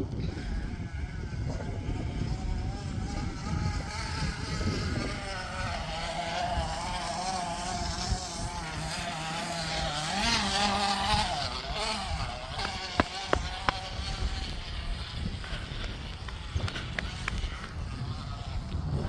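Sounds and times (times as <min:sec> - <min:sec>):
plastic bottle buzzing in bicycle spokes: 0:00.0 - 0:19.0
wind rumble on microphone: 0:00.0 - 0:19.0.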